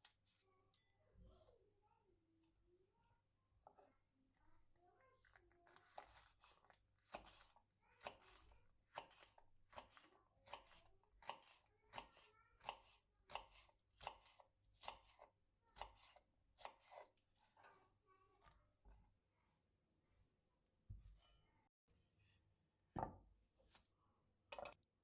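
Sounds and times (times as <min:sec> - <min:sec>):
knife chopping on cutting board: 0:06.0 - 0:17.1.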